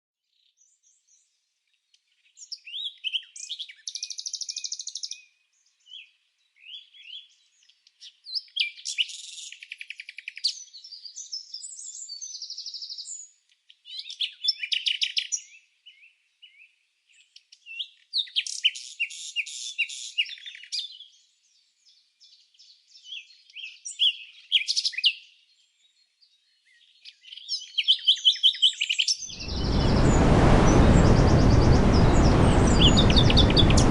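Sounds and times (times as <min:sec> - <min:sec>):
songbird chirping and trilling: 0:00.3 - 0:30.2, 0:30.9 - 0:33.9.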